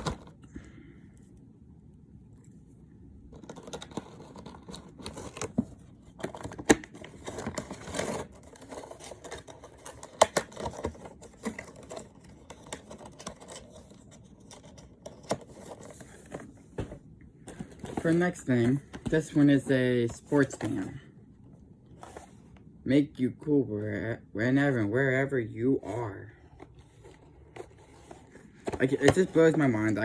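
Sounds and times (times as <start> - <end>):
packaging rustling: 3.4 - 20.9.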